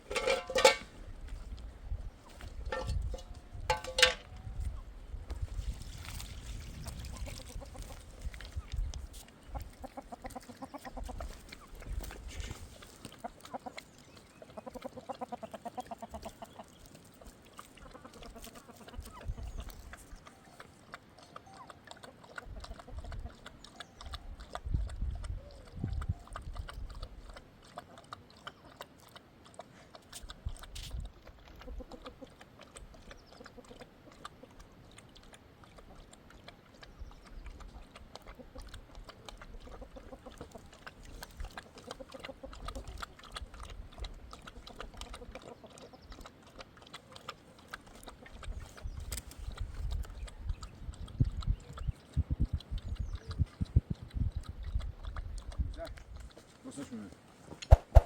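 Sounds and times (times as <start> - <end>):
farm animals calling: 0.0 - 0.9, 9.4 - 24.3.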